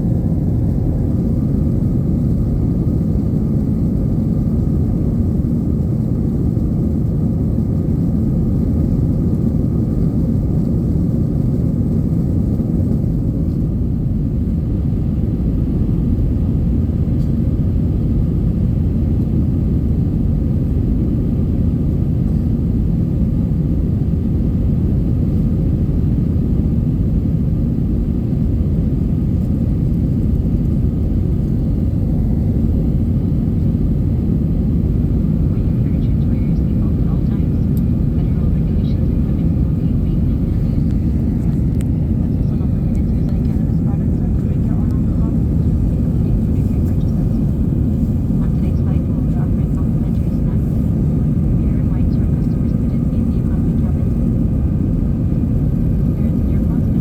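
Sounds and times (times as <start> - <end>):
jet engine and airflow rumble: 0.0 - 57.0.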